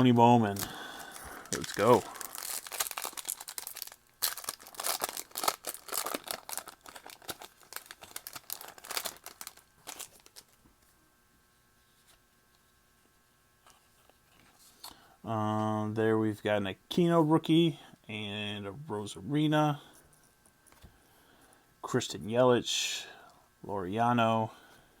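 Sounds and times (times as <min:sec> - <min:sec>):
wrapper tearing and crinkling: 0:00.0 - 0:10.6
faint steady hum: 0:00.0 - 0:25.0.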